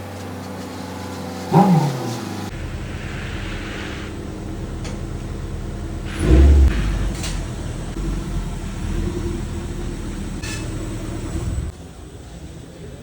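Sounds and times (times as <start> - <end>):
engine idling: 0.0 - 13.0
heavy thump: 6.1 - 8.1.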